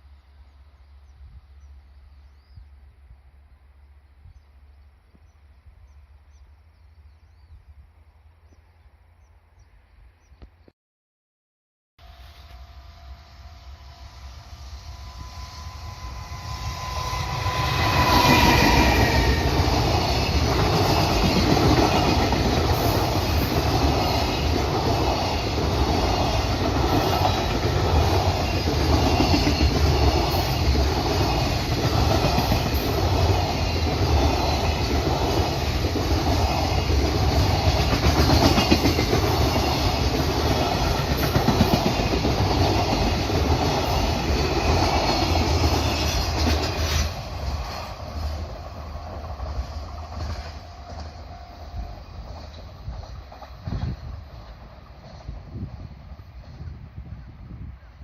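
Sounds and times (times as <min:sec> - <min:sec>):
freight train passing: 0:12.0 - 0:58.0
thin high train tone: 0:12.0 - 0:58.0.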